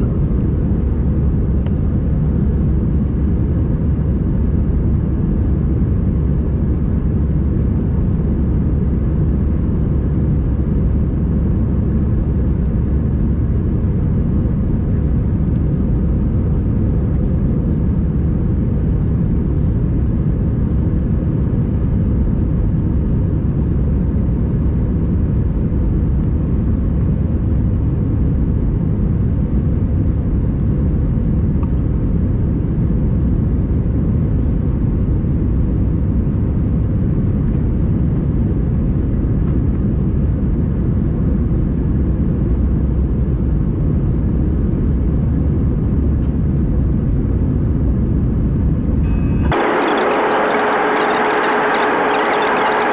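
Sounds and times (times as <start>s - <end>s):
aircraft cabin engine and airflow noise: 0.0s - 52.9s.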